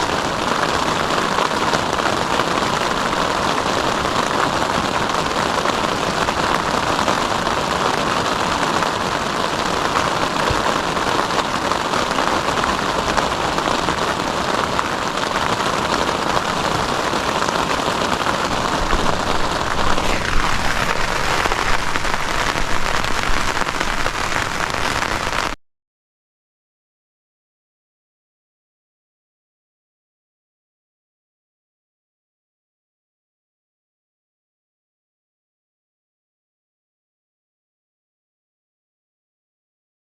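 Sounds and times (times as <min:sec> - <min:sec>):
heavy rain hissing: 0:00.0 - 0:25.6.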